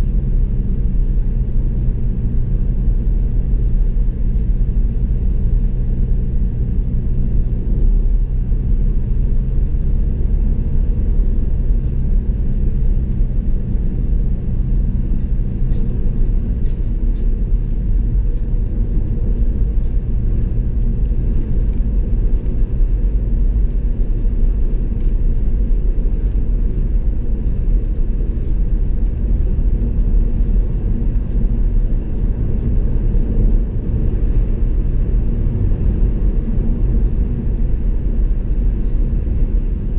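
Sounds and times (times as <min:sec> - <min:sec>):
car road noise rumble: 0:00.0 - 0:39.9.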